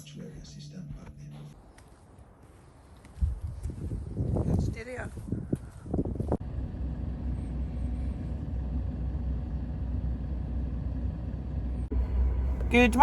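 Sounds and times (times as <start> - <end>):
vehicle cabin rumble: 6.0 - 13.0.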